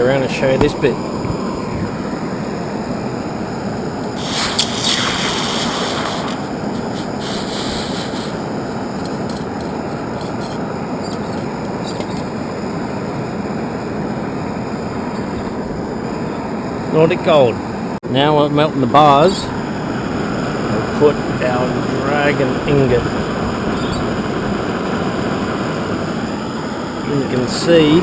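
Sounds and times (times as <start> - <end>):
bright hiss: 4.1 - 11.6.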